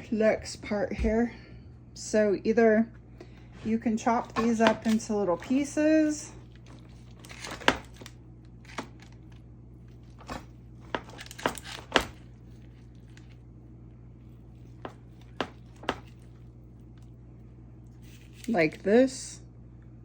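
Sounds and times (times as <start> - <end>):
knife chopping on cutting board: 14.8 - 16.2.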